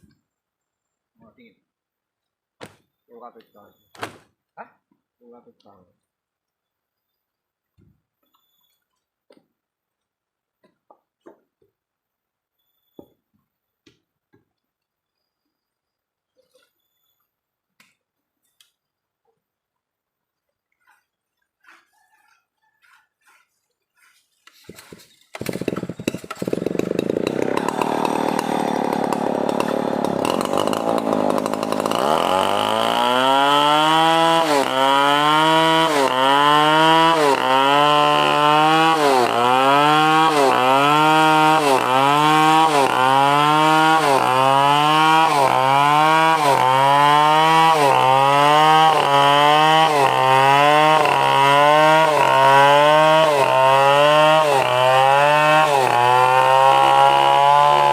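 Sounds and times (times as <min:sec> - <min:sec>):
chainsaw cutting wood: 0:20.8 - 0:57.9.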